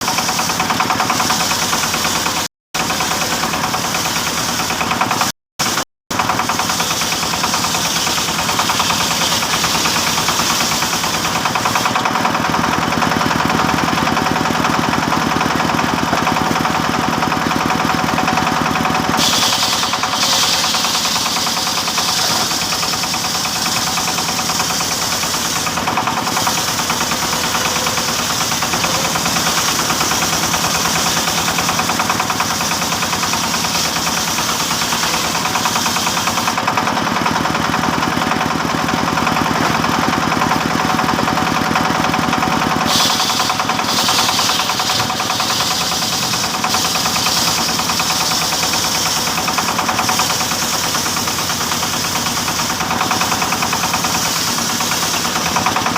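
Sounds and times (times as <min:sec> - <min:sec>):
high hiss of saw: 0:00.0 - 0:04.9, 0:05.6 - 0:12.0, 0:19.0 - 0:36.6, 0:42.7 - 0:55.8
sawmill saw engine beating: 0:00.0 - 0:55.9.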